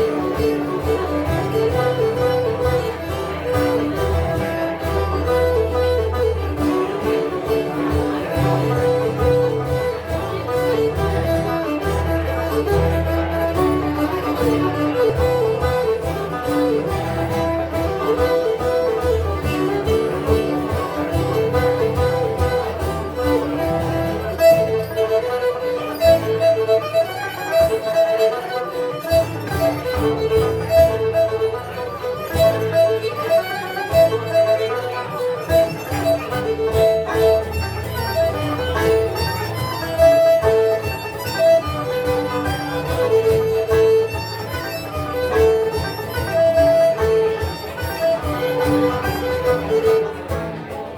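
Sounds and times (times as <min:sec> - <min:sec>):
banjo: 0:00.0 - 0:50.9
high melody line: 0:00.0 - 0:50.9
strummed twelve-string guitar: 0:00.0 - 0:50.9.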